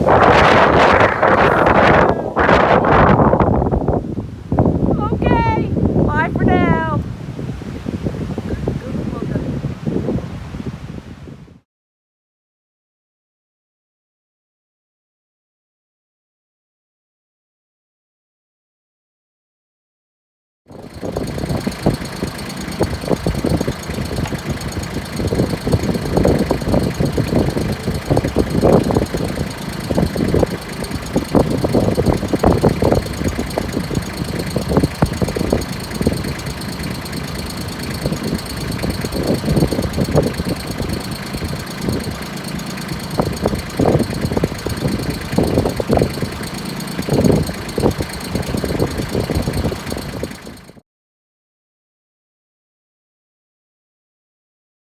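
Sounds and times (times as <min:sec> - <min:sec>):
gusty wind buffeting microphone: 0:00.0 - 0:11.6, 0:20.7 - 0:50.8.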